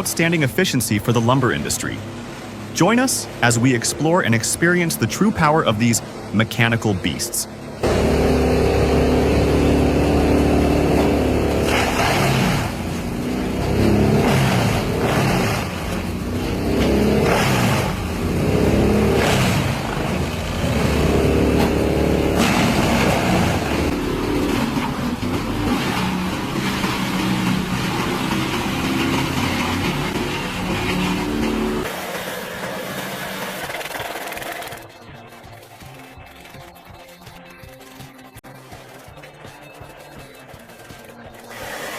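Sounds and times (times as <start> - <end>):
diesel engine labouring: 0.0 - 36.2
wood crunching and grinding: 7.8 - 34.8.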